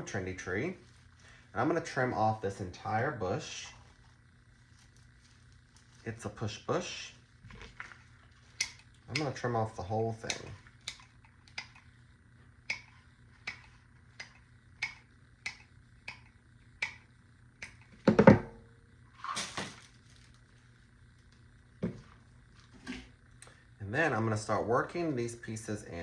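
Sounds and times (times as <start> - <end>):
cutters snipping stems: 8.6 - 9.4, 10.2 - 11.9, 12.7 - 17.0.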